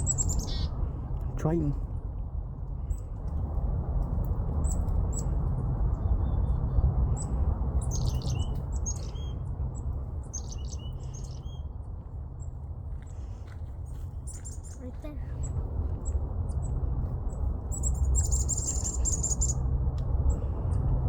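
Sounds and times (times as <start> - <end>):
chickadee calls: 0.0 - 0.8, 7.8 - 9.4, 10.3 - 11.6, 17.7 - 19.6
steady low rumble: 0.0 - 21.0.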